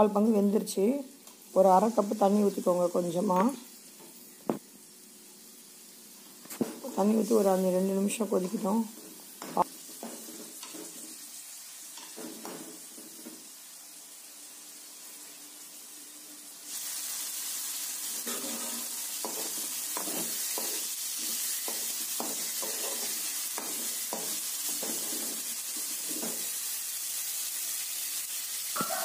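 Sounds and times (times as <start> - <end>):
food sizzling in a metal pan: 0.0 - 29.0
steel spoon scraping and stirring: 18.2 - 26.5.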